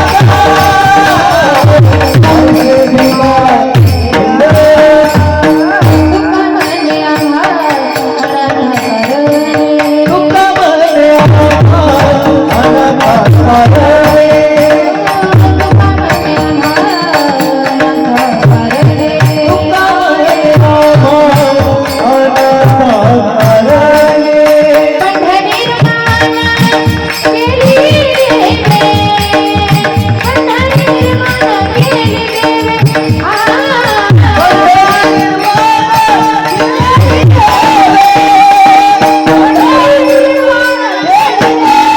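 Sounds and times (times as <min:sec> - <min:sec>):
tabla beat: 0:00.0 - 0:41.9
women singing devotional song: 0:00.0 - 0:41.9.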